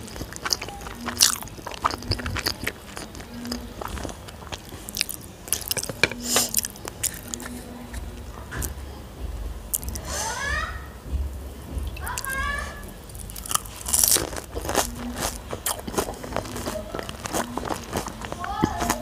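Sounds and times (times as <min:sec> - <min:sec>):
crunchy chewing of food: 0:00.0 - 0:08.8, 0:13.1 - 0:19.0
wet mouth sounds: 0:00.0 - 0:08.8, 0:13.1 - 0:19.0.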